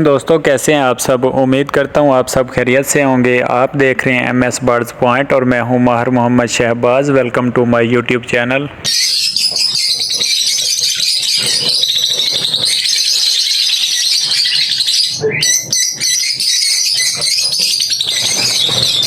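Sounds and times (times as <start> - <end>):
budgerigars chattering: 8.8 - 19.0.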